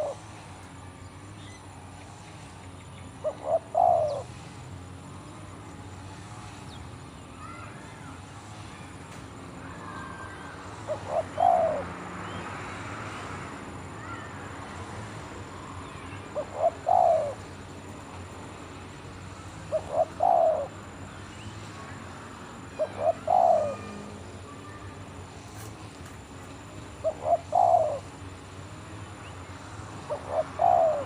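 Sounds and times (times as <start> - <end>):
dove cooing: 0.0 - 0.2, 3.2 - 4.5, 10.8 - 12.1, 16.0 - 17.7, 19.5 - 21.1, 22.6 - 24.8, 26.6 - 28.9, 29.9 - 31.0.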